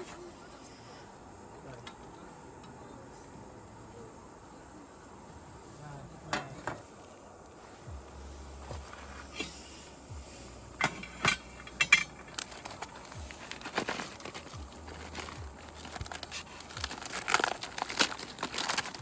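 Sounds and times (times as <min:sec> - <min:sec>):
crinkling: 0:08.5 - 0:19.0
clicks and clinks of handled things: 0:10.8 - 0:19.0.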